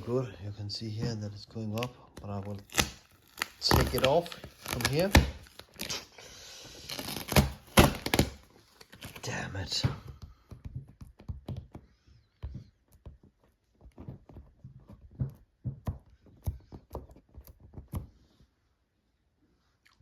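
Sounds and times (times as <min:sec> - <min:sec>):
irregular knocks and thuds: 0:09.7 - 0:18.3.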